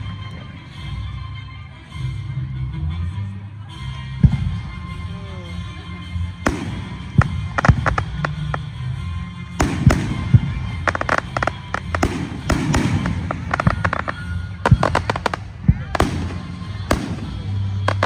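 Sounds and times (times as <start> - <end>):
fireworks bangs and crackling: 4.2 - 18.0.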